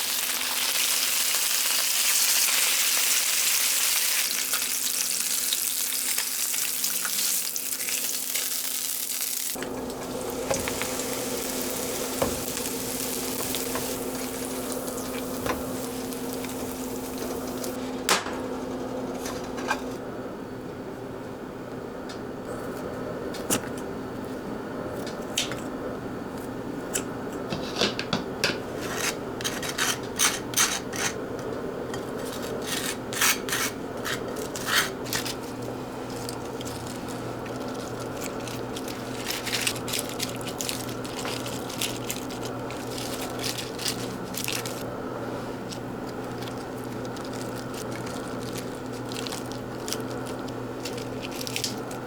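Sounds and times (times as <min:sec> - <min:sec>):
kitchen utensils clicking and scraping: 0:19.1 - 0:20.0, 0:27.4 - 0:31.2, 0:31.9 - 0:44.8.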